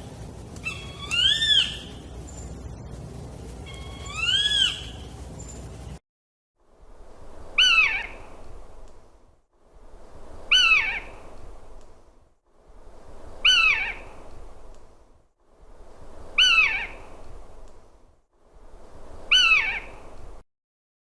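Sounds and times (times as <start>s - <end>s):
bird of prey screeching: 0.6s - 2.0s, 3.7s - 5.1s, 7.6s - 8.2s, 10.5s - 11.1s, 16.4s - 17.0s, 19.3s - 19.9s.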